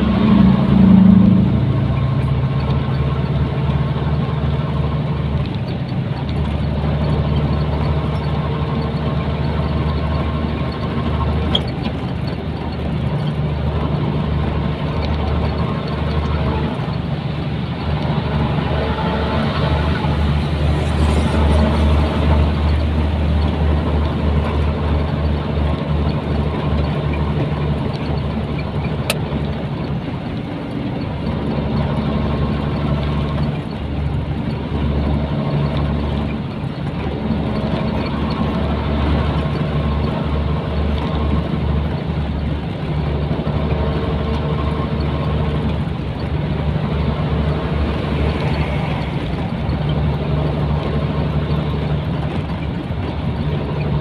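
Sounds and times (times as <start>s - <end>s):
diesel truck engine drone: 0.0s - 54.0s
sharp tick: 28.8s - 29.7s.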